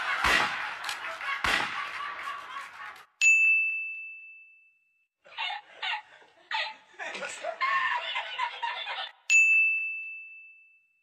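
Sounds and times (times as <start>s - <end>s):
man laughing: 5.3s - 9.1s.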